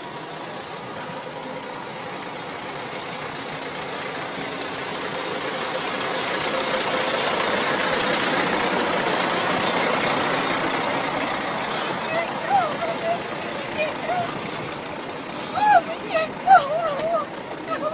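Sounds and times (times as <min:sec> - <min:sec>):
vehicle engine and road noise: 0:00.0 - 0:17.9.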